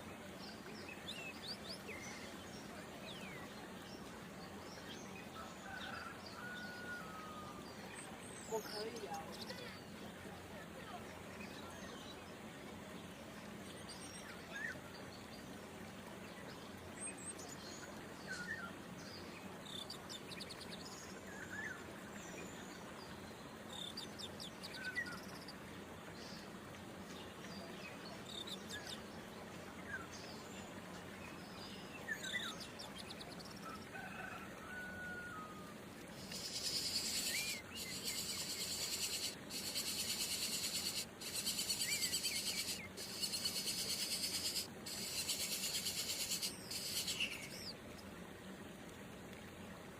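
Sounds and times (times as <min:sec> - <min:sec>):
faint insect background: 0:36.1 - 0:48.0
bird chirps: 0:36.2 - 0:47.7
shrill insect chorus: 0:36.3 - 0:47.3.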